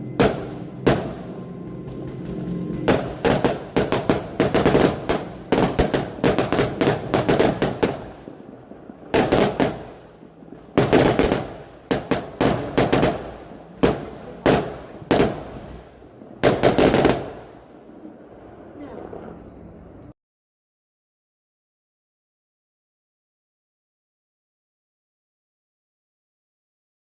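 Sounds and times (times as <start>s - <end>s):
fireworks bangs: 0.0s - 20.1s.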